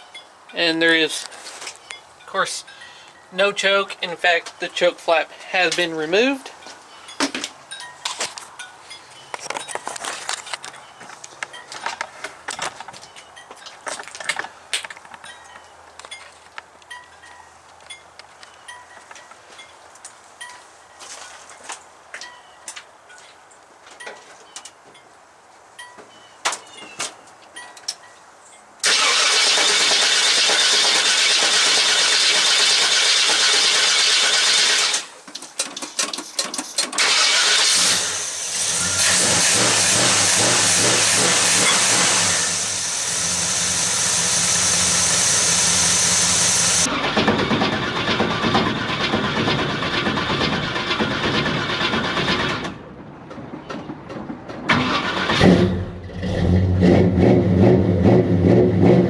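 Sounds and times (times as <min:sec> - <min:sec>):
engine running: 0:28.8 - 0:35.1, 0:37.0 - 0:52.8
starter motor cranking: 0:28.8 - 0:35.1, 0:36.3 - 0:52.6.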